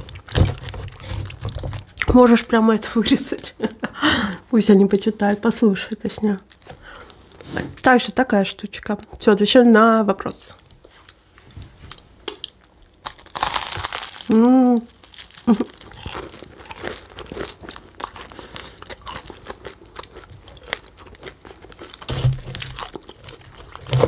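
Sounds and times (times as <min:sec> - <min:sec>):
crunchy chewing of pastry: 0:00.0 - 0:02.3, 0:11.9 - 0:24.0
loud pastry crackle: 0:00.0 - 0:03.4, 0:12.6 - 0:24.0.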